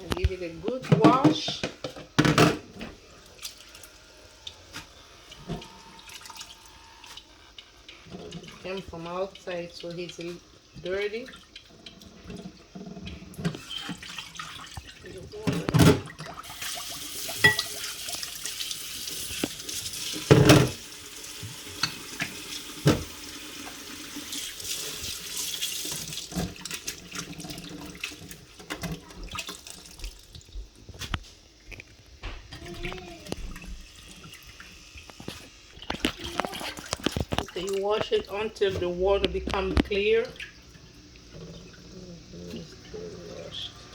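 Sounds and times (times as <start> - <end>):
tap water running into sink: 0.0 - 43.9
water splashing: 2.7 - 20.8, 31.6 - 43.9.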